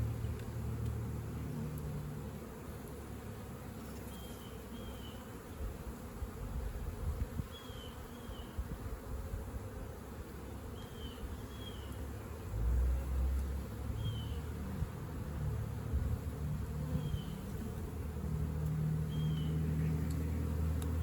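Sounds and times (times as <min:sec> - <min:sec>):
bees buzzing: 0:00.0 - 0:21.0
bird chirping: 0:10.8 - 0:12.0, 0:14.0 - 0:14.5, 0:17.0 - 0:17.4, 0:19.1 - 0:20.4.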